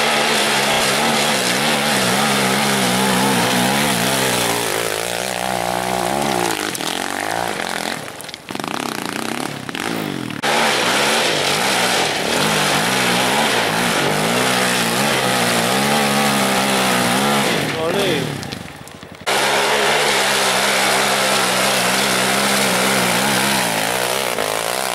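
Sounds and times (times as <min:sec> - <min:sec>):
off-road vehicle engine revving: 0:00.0 - 0:24.9.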